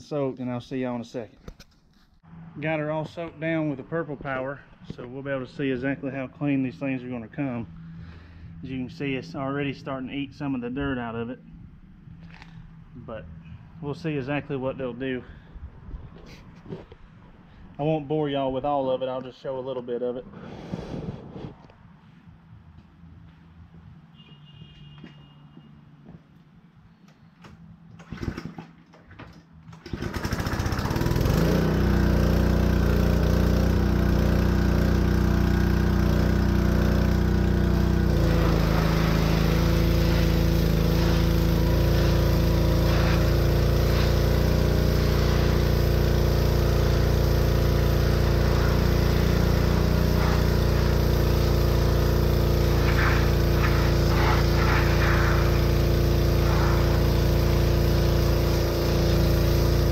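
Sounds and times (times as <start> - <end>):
small gasoline engine running: 29.7 - 59.9.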